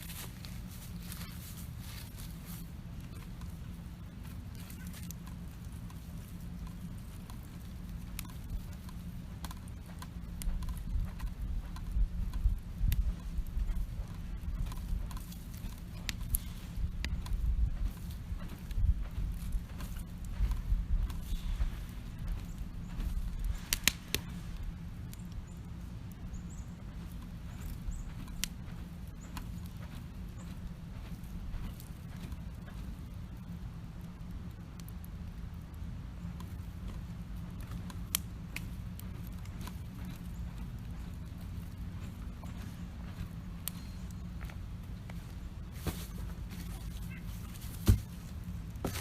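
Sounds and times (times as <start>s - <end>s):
campfire crackling: 0.0s - 49.0s.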